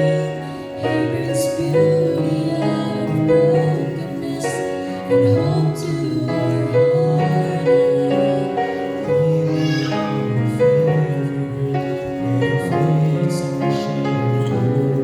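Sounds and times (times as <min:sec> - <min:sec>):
gospel piano: 0:00.0 - 0:15.0.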